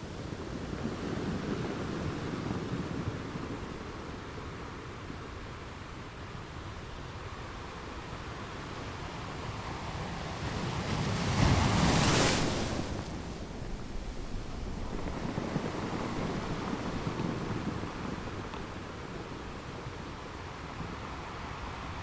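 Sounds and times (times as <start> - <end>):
ocean waves breaking on shore: 8.2 - 22.0.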